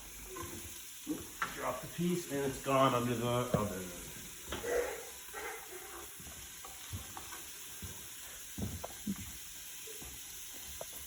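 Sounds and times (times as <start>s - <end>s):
vegetables sizzling in a pot: 0.0s - 11.0s.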